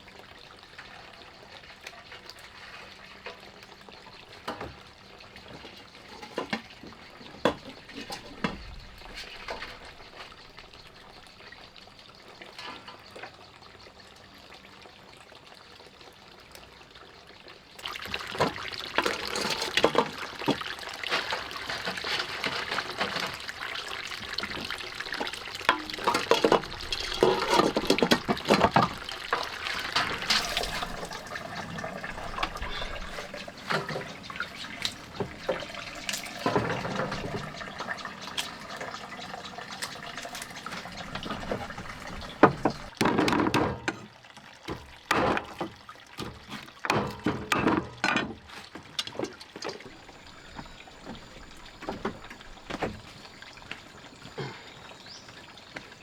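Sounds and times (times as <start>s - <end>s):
water running and splashing: 0.0s - 43.1s, 48.6s - 56.0s
knocks and clatter: 24.5s - 44.0s.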